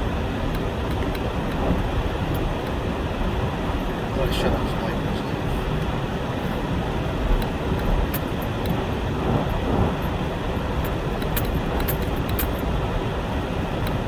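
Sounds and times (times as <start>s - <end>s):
truck engine and tyres rumbling: 0.0s - 14.0s
faint clicks and ticks: 0.4s - 4.0s.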